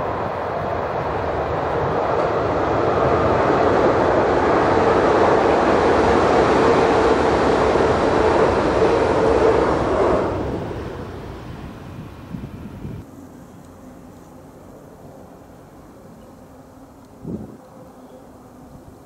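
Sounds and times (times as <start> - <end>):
train rumbling over bridge: 0.0 - 13.1.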